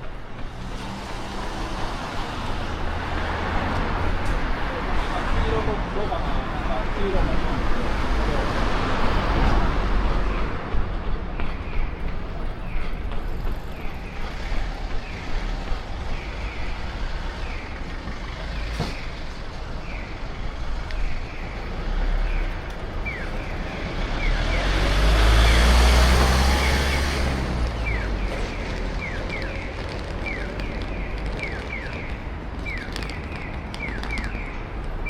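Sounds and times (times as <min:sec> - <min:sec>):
vehicle passing by: 0:23.8 - 0:30.2.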